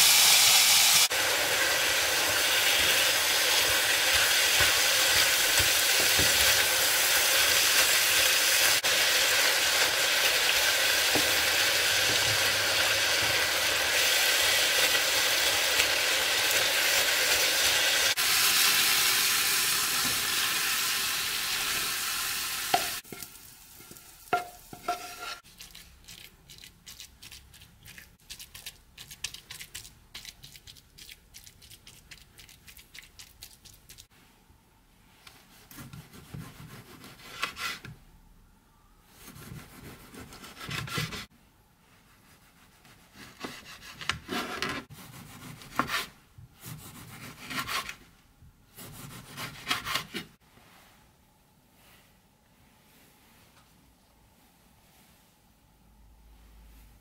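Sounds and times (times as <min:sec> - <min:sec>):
meat sizzling in a frying pan: 0:00.0 - 0:25.4
wooden spatula scraping a pan: 0:22.7 - 0:25.9, 0:35.5 - 0:38.0, 0:39.2 - 0:41.3, 0:42.0 - 0:48.1, 0:48.8 - 0:51.1
knife cutting on wooden board: 0:35.7 - 0:37.9, 0:42.9 - 0:48.0, 0:48.8 - 0:50.3.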